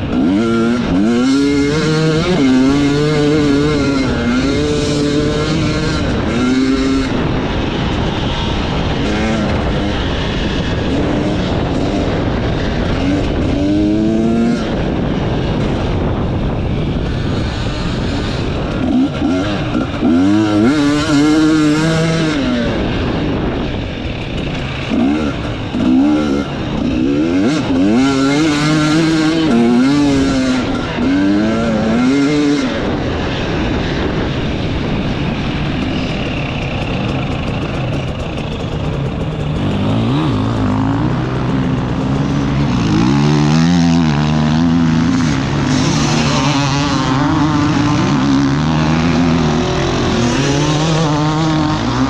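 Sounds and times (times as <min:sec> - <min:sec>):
motorcycle engine revving: 0:00.0 - 0:52.0
noisy rush: 0:00.0 - 0:52.0.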